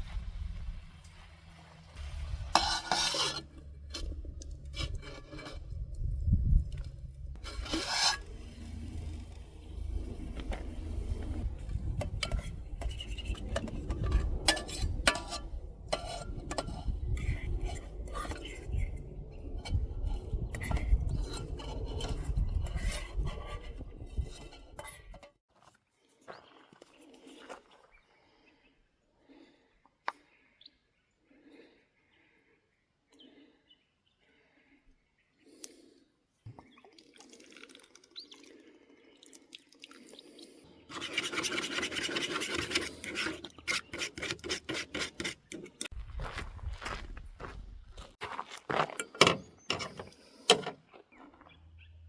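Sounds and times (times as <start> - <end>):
low steady rumble: 0.0 - 24.8
short scraping sounds: 2.0 - 5.9, 7.3 - 9.5, 40.9 - 45.9, 49.3 - 51.3.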